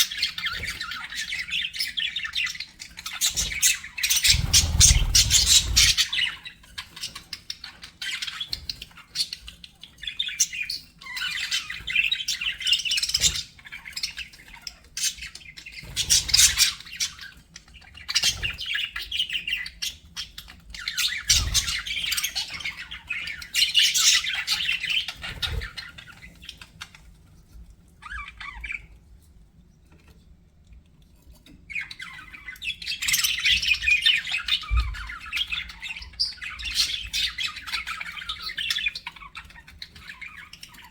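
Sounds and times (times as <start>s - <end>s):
budgerigars chattering and squawking: 3.2s - 9.4s.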